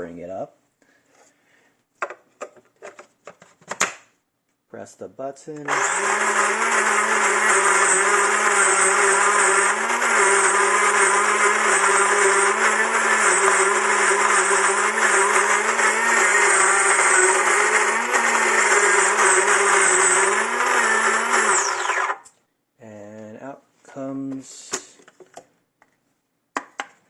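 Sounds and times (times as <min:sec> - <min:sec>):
coffee grinder grinding beans: 0:05.7 - 0:22.2.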